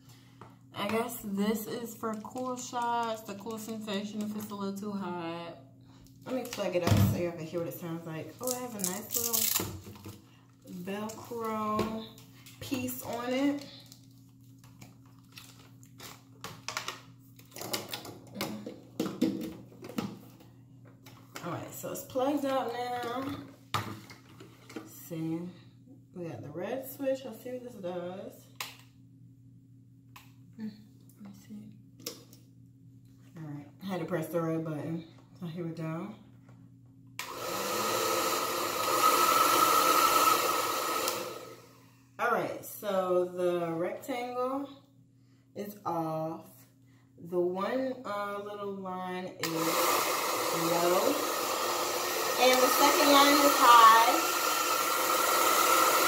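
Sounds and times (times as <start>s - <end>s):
hair dryer whining: 37.2s - 41.9s, 49.4s - 56.0s.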